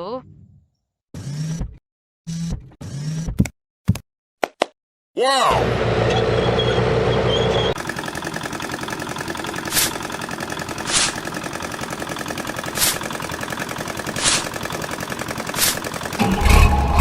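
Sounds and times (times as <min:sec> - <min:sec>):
toy excavator mechanical clatter: 0:07.8 - 0:17.0.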